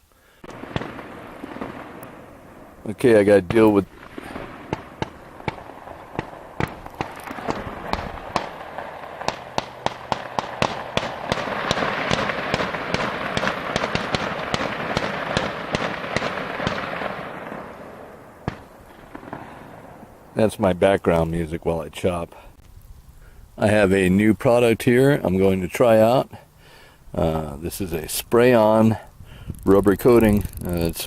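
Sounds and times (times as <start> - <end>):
sharp cracks and pops: 0.4 - 23.2, 29.5 - 31.0.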